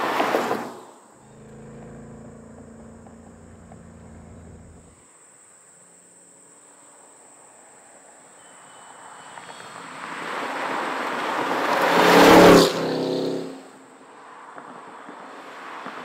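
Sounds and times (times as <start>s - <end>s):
car engine passing by: 1.2s - 5.0s.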